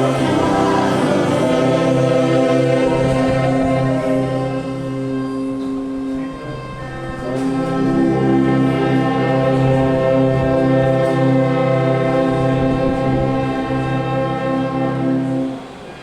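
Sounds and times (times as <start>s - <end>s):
voices singing: 0.0s - 5.6s
orchestra playing a hymn: 0.0s - 15.9s.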